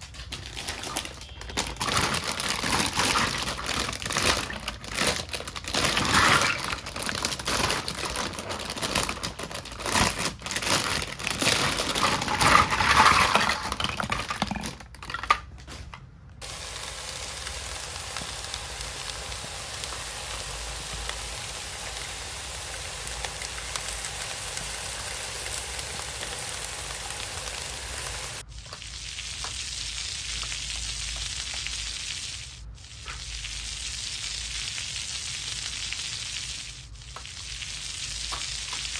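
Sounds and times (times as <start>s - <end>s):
packaging crinkling and clicking: 0.0s - 16.0s
steady sizzling hiss: 16.4s - 38.9s.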